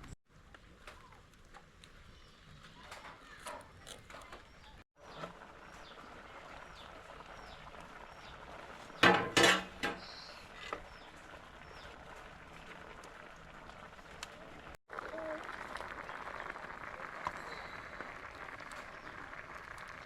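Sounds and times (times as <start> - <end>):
bird chirping: 10.0 - 12.0.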